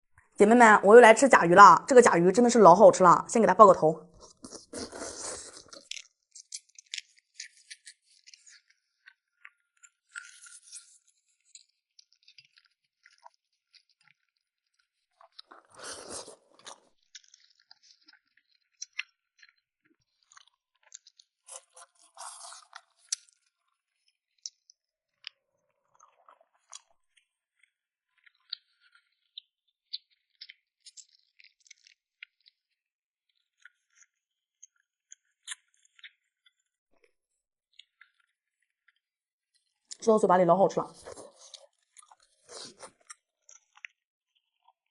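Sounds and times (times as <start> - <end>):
wet chewing and sucking: 4.1 - 8.6, 15.2 - 19.5, 20.2 - 23.7, 25.8 - 27.2, 40.9 - 44.0.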